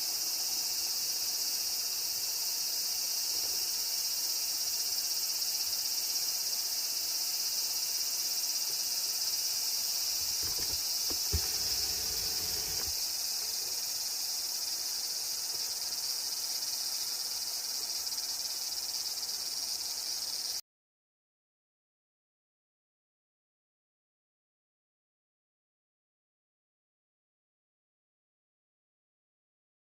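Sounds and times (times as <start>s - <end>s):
insects buzzing: 8.4s - 20.6s.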